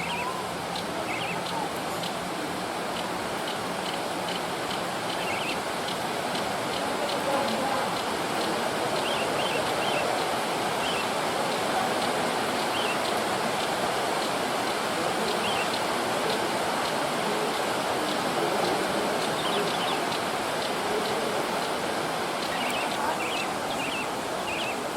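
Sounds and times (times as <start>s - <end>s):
faint bird chirps: 0.0s - 1.7s, 5.1s - 5.6s, 9.0s - 10.1s, 10.8s - 11.1s, 12.7s - 13.1s, 15.3s - 15.8s, 22.4s - 24.8s
water rushing: 0.0s - 24.9s.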